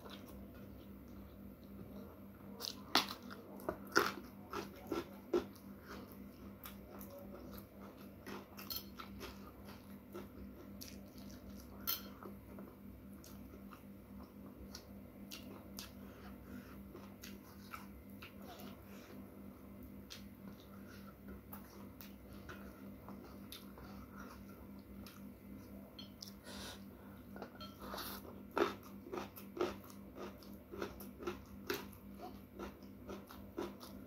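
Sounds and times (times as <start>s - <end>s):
crunchy chewing: 0.0s - 34.0s.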